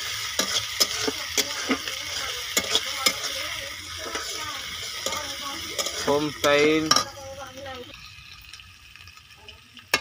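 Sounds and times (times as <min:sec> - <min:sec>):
metal spoon scraping a pan: 0:00.0 - 0:07.4
onion sizzling in a pan: 0:00.0 - 0:10.0.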